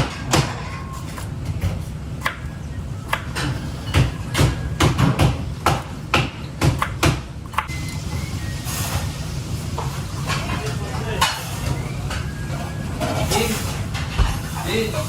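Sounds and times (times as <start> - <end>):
knife chopping on cutting board: 3.1 - 7.7.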